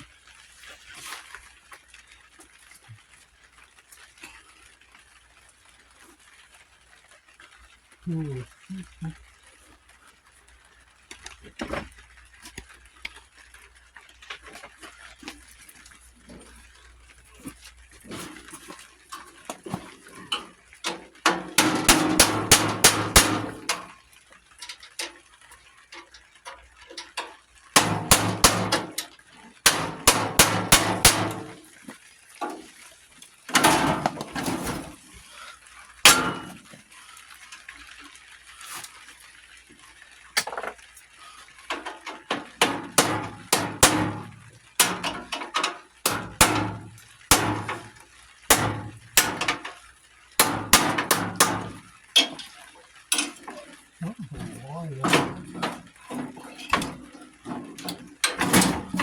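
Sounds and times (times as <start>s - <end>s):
metal-on-metal banging: 18.0s - 24.0s, 27.0s - 31.7s, 33.5s - 35.0s, 36.1s - 36.8s, 41.7s - 49.8s, 50.4s - 53.6s, 54.4s - 59.0s.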